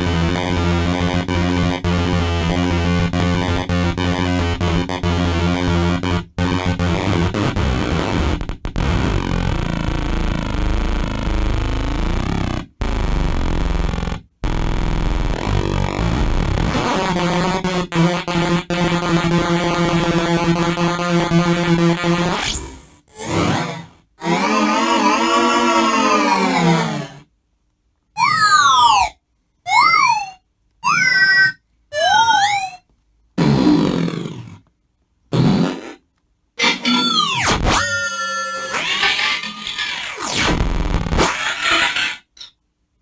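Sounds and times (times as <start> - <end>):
glitched buzzing looped samples: 0.0 - 24.6, 26.4 - 27.2, 34.2 - 34.6, 36.8 - 42.2.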